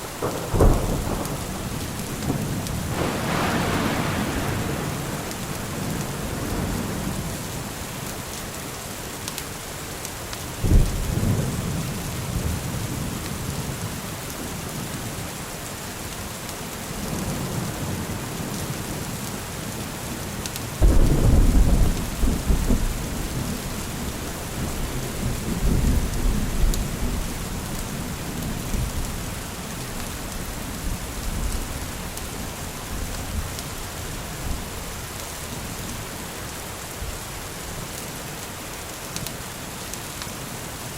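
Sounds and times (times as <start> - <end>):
rolling thunder: 0.0 - 8.2, 20.8 - 33.6
steady rain falling: 0.0 - 40.9.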